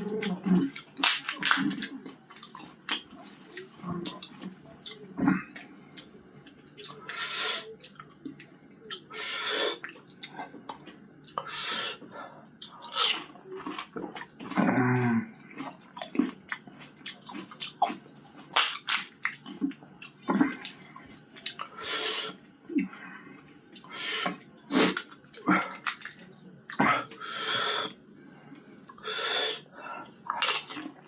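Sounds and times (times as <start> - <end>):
hissing breaths: 7.0 - 7.8, 9.1 - 9.9, 21.7 - 25.0, 27.1 - 30.2.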